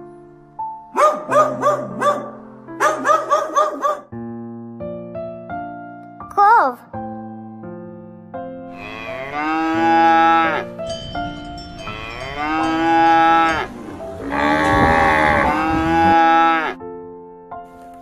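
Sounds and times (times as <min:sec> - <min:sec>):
cattle mooing: 0:08.7 - 0:10.8, 0:11.8 - 0:16.8.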